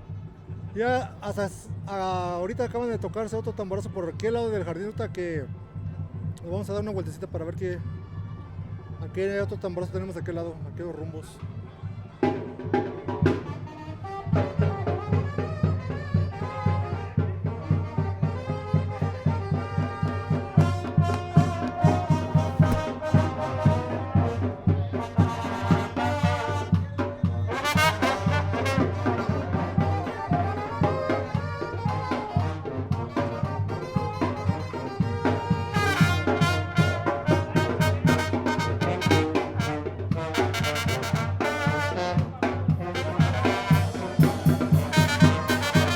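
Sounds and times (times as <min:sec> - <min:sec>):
trumpets and trombones: 0:12.7 - 0:26.8, 0:27.4 - 0:45.9
bass drum beat: 0:18.7 - 0:24.4.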